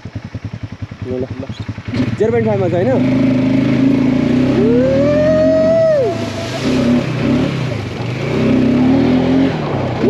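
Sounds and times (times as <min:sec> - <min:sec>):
quad bike engine running: 0:00.0 - 0:10.0
long rising and falling tone: 0:04.4 - 0:09.4.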